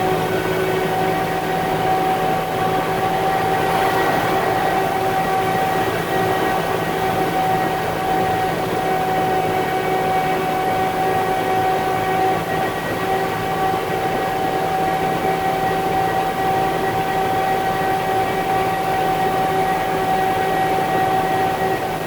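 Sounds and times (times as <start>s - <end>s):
steady whine: 0.0s - 11.0s.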